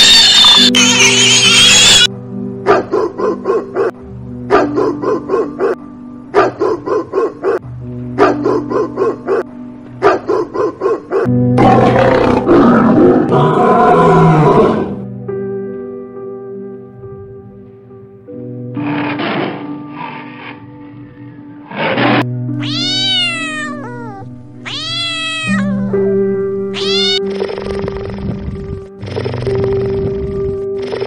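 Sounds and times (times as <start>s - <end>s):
pig squeal: 0.0s - 2.1s, 26.8s - 27.2s
background music: 0.0s - 31.0s
dog barking: 2.6s - 7.6s, 8.2s - 11.3s
lion roaring: 11.6s - 15.0s, 18.8s - 20.7s, 21.6s - 22.3s.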